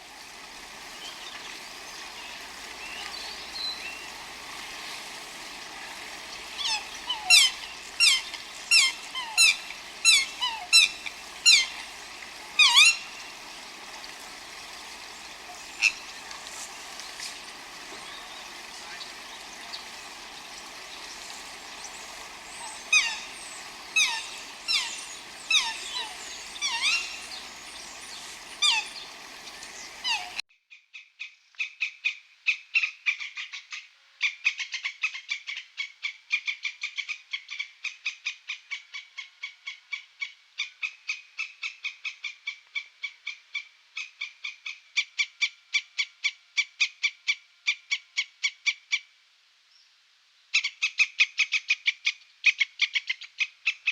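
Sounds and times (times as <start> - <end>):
background hiss: 0.0 - 30.4
falling whistled animal calls: 12.6 - 13.1, 17.0 - 30.4.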